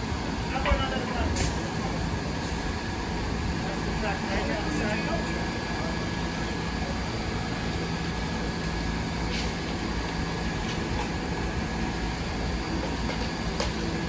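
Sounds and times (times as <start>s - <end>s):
subway train humming: 0.0s - 14.0s.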